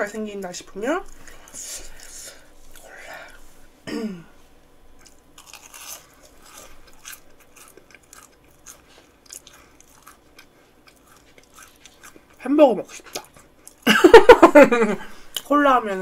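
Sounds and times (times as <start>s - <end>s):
crunching fried food: 5.0s - 13.9s.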